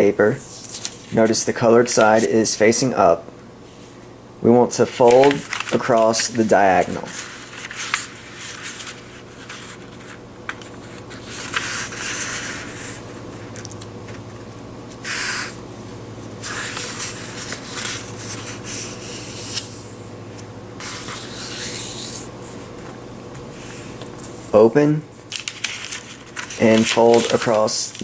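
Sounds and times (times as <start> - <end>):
faint steady hum: 0.0 - 28.0
paper swishing and creasing: 0.4 - 2.4, 4.9 - 13.6, 16.2 - 19.8, 20.8 - 24.4, 25.3 - 28.0.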